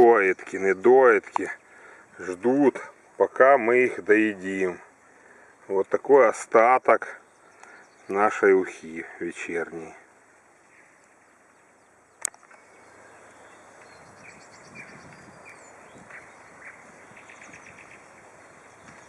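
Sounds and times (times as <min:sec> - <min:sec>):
birds chirping: 0:00.0 - 0:19.0
outdoor hiss: 0:00.0 - 0:19.0
sharp click: 0:12.2 - 0:12.6.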